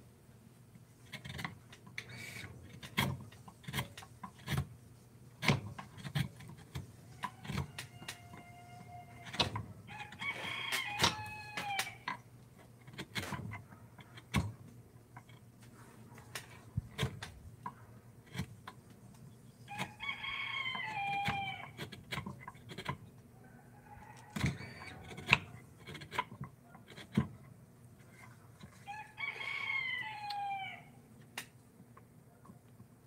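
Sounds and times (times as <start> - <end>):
rooster crowing: 7.1 - 12.0, 19.7 - 21.8, 23.4 - 25.4, 28.8 - 31.0.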